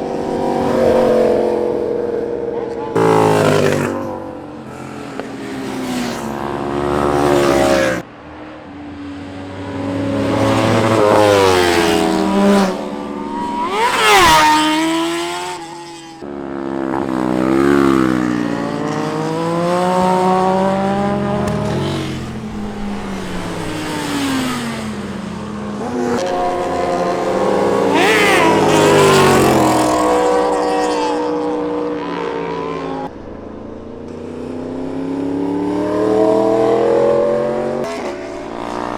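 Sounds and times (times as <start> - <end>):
motorcycle engine revving hard: 0.0 - 8.0, 9.8 - 16.2, 16.8 - 33.1.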